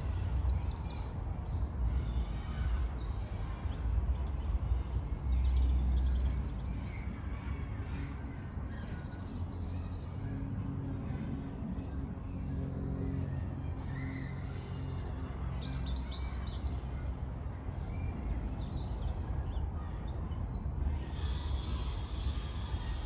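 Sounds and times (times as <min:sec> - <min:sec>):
road traffic rumble: 0:04.0 - 0:23.0
small birds chirping: 0:17.7 - 0:23.0.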